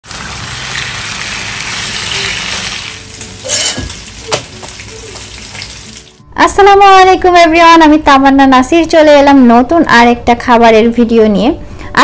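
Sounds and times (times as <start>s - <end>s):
chicken sizzling in hot oil: 0.0s - 6.2s.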